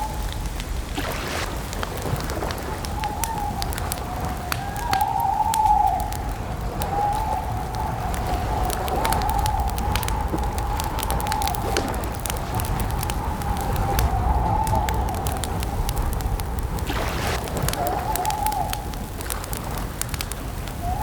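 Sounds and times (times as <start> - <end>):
campfire crackling and popping: 0.0 - 21.0
low rumble: 6.0 - 19.8.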